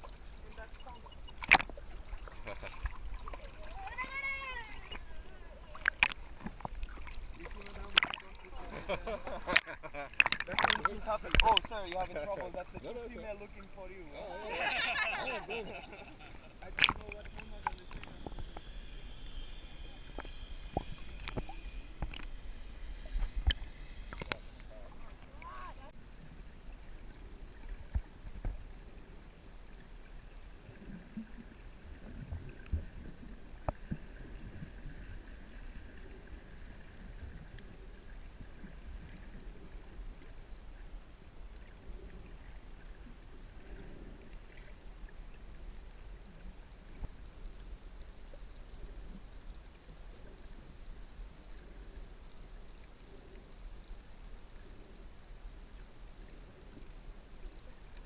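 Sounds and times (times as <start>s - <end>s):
seawater sloshing and lapping: 0.0s - 13.6s.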